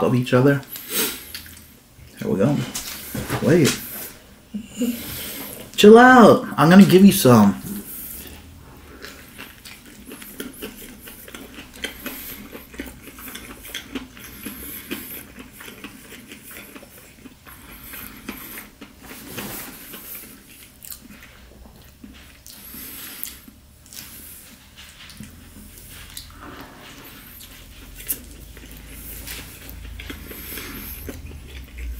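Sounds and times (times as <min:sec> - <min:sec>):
crispy fried food crunching: 0:08.3 - 0:31.9.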